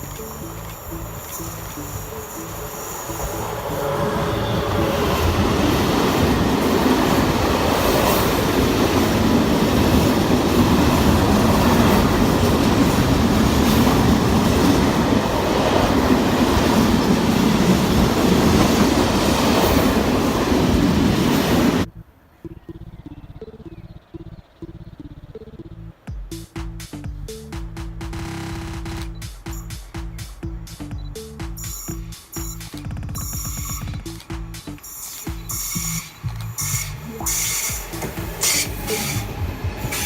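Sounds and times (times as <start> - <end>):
train rolling past on rails: 0.0 - 21.9, 31.5 - 40.0.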